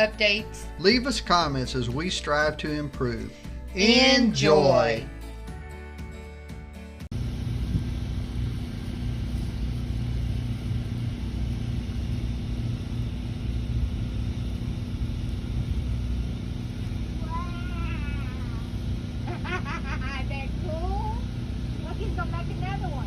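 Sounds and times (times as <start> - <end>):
low engine rumble: 7.1 - 23.0.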